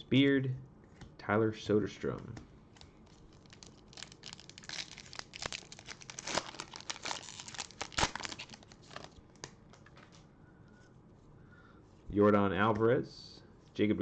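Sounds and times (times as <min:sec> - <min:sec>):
foil wrapper tearing and crinkling: 0:03.0 - 0:09.2.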